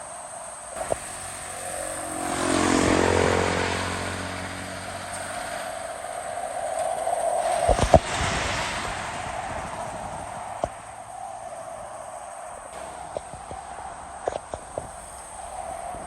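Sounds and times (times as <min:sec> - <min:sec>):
truck engine passing by: 0:00.6 - 0:10.9.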